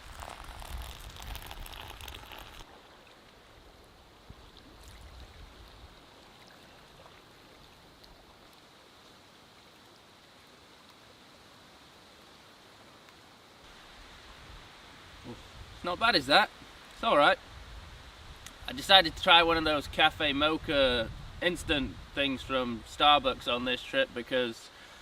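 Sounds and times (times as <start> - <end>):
raindrops ticking: 0.0 - 2.7
light rain pattering: 0.0 - 25.0
wind buffeting microphone: 20.1 - 22.1.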